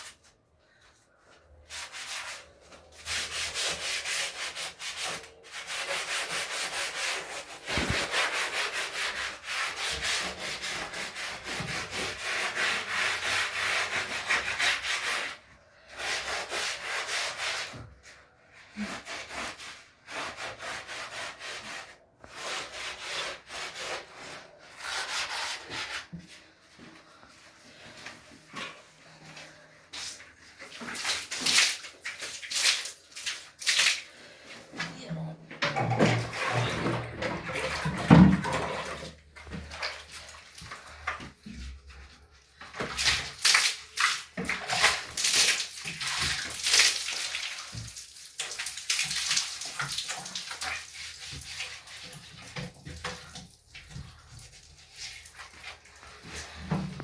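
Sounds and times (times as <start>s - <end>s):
hand scrubbing a surface: 0.0s - 35.0s.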